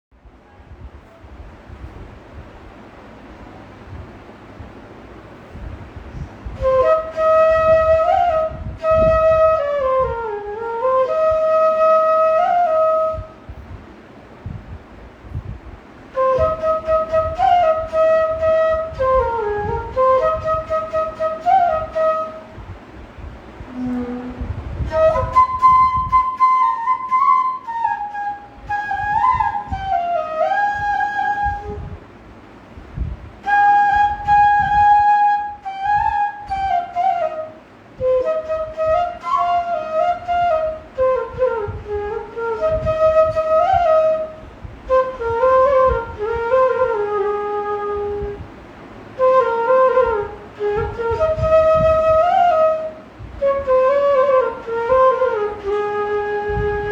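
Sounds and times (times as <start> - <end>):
bamboo flute melody: 6.2 - 13.6, 16.1 - 22.8, 23.6 - 32.0, 33.4 - 48.4, 49.1 - 56.9.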